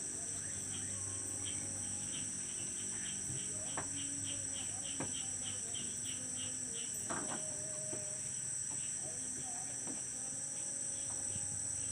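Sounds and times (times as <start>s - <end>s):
crickets trilling: 0.0s - 11.9s
faint low hum: 0.0s - 11.9s
pulsing insect call: 0.0s - 11.9s.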